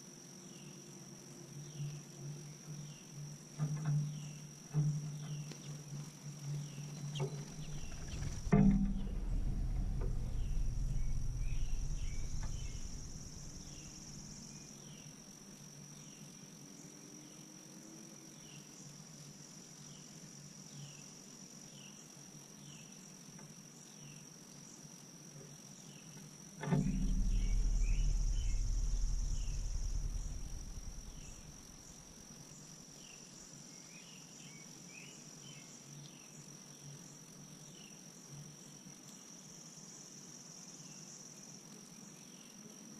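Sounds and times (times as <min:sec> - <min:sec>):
high-pitched insect chorus: 0:00.0 - 0:42.9
low rumble: 0:06.6 - 0:15.1, 0:26.7 - 0:32.8
thump: 0:07.2 - 0:14.6, 0:26.6 - 0:32.3.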